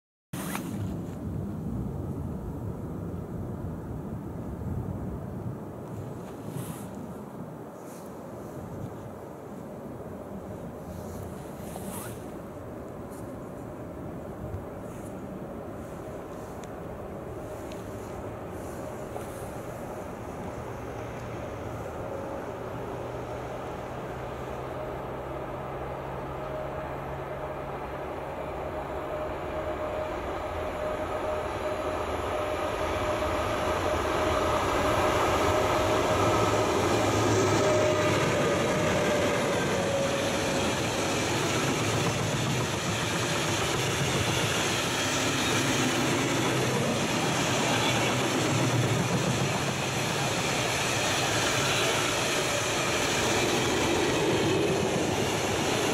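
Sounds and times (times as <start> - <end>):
steady whine: 12.4 - 55.9
wheels on rails: 32.6 - 55.9.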